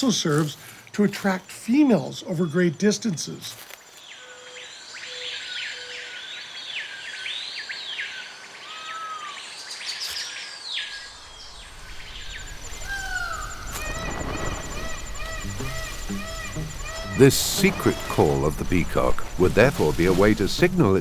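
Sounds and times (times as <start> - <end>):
birds chirping in chorus: 7.3 - 21.0
faint high buzz: 11.1 - 21.0.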